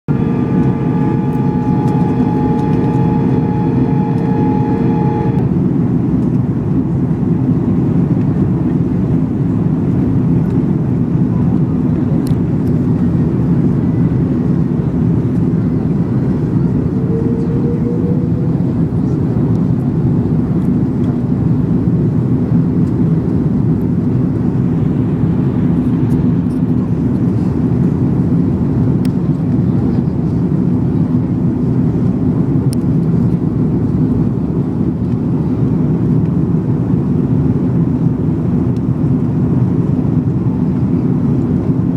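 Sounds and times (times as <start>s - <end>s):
jet engine roar in cabin: 0.0s - 41.9s
airflow past fuselage: 0.1s - 5.7s, 15.1s - 20.4s
multi-pitch whine: 0.1s - 6.0s, 14.4s - 20.7s, 24.1s - 27.5s.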